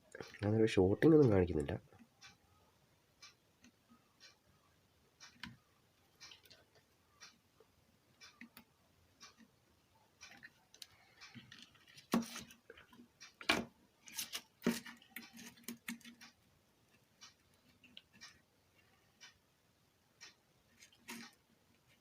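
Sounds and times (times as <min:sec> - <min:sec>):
small tools clicking and tapping: 0:10.2 - 0:16.4.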